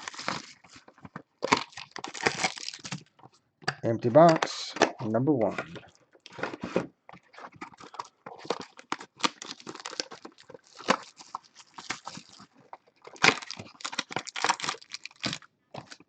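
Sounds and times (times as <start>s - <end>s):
wrappers crinkling: 0.0s - 3.1s, 7.3s - 16.0s.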